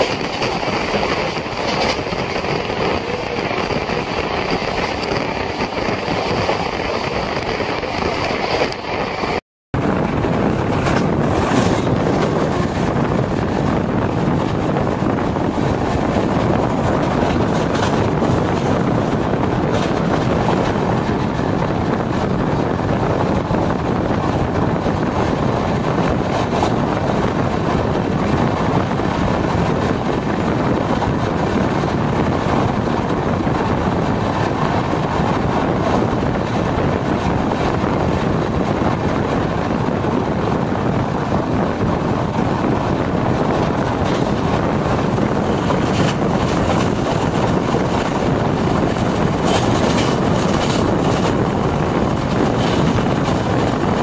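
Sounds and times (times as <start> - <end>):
train wheels rumbling on rail: 0.0 - 54.0
wind buffeting microphone: 0.0 - 54.0.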